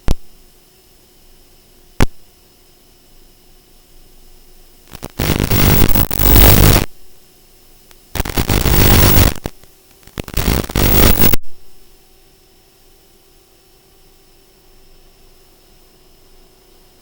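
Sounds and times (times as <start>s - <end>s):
faint steady hum: 0.0s - 17.0s
harsh static hiss bursts: 4.8s - 7.3s, 7.9s - 12.0s.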